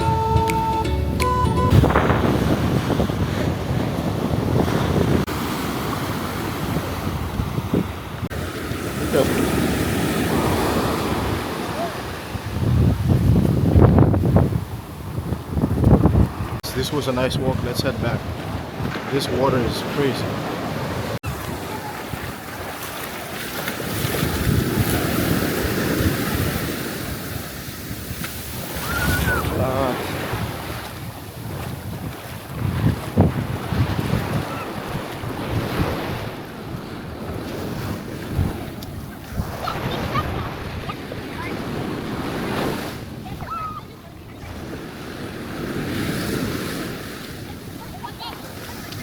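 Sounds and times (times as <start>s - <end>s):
background music: 0.0s - 1.8s
wind buffeting microphone: 1.6s - 19.1s, 23.8s - 49.0s
surf breaking on beach: 1.7s - 49.0s.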